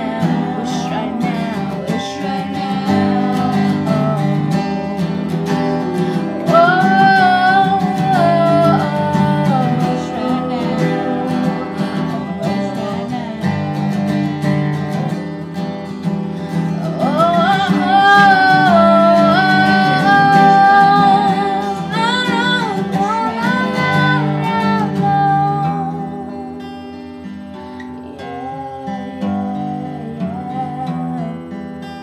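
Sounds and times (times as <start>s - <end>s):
woman singing wordless notes: 0.0s - 15.2s, 16.3s - 32.0s
acoustic guitar strumming: 0.0s - 32.0s.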